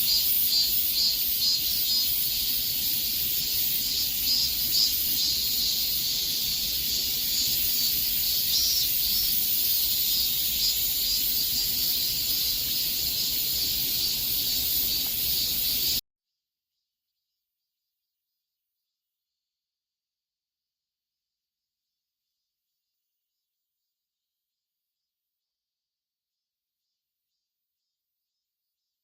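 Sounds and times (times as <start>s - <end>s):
cicadas buzzing: 0.0s - 16.0s.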